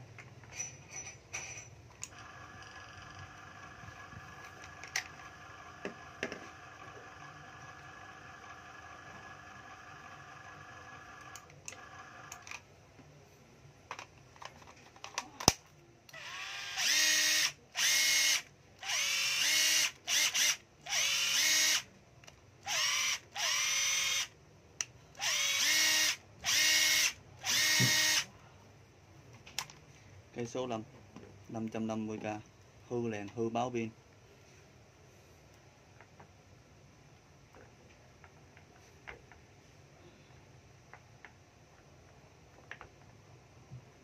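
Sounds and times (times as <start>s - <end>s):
cordless drill whining: 16.1s - 21.9s, 22.6s - 24.3s, 25.2s - 28.3s.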